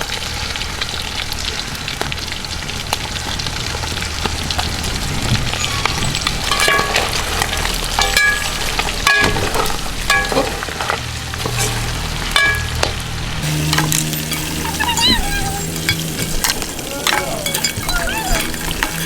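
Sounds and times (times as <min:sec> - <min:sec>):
food sizzling in hot oil: 0:00.0 - 0:19.0
metal ladle scraping pot: 0:05.7 - 0:19.0
steady low hum: 0:11.1 - 0:17.8.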